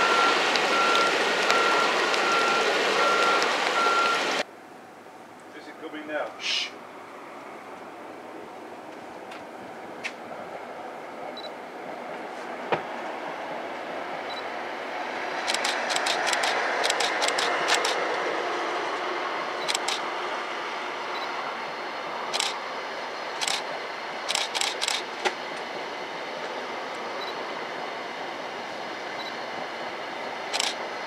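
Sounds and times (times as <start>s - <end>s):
train wheels on rail: 0.0s - 4.4s, 11.2s - 31.0s
sharp wheel clicks: 15.4s - 18.0s, 19.6s - 20.0s, 22.3s - 22.6s, 30.5s - 30.8s.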